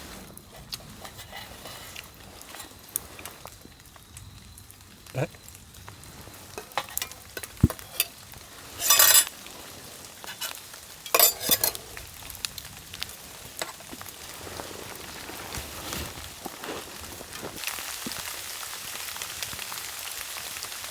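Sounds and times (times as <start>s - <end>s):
metal utensils clinking and scraping: 0.0s - 3.5s, 6.2s - 12.3s, 13.5s - 14.9s
loud bursts of sizzling: 1.8s - 15.5s.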